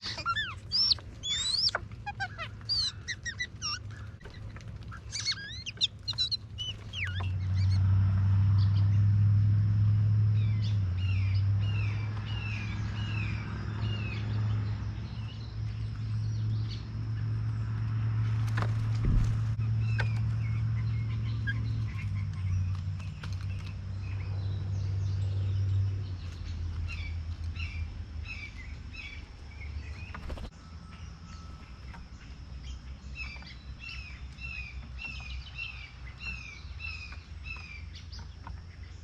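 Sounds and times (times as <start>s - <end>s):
low motor hum: 0.0s - 39.0s
small birds chirping: 0.0s - 39.0s.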